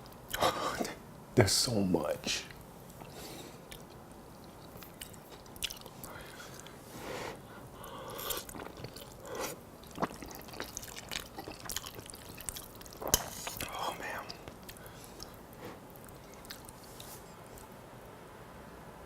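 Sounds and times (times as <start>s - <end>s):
person chewing food: 2.9s - 17.7s
mouth clicks and smacks: 8.1s - 15.4s.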